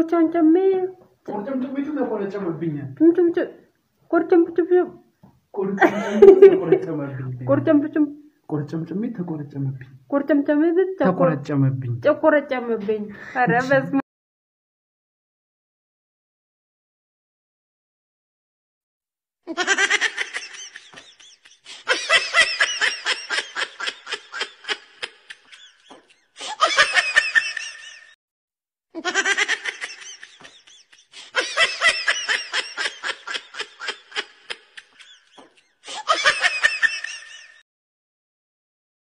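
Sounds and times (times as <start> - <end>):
person laughing hard: 5.8 - 6.6, 19.5 - 28.1, 29.0 - 37.6.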